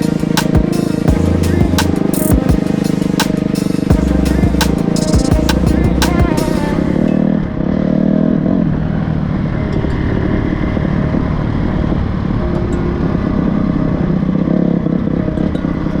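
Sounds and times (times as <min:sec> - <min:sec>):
motorcycle engine revving: 0:00.0 - 0:08.9.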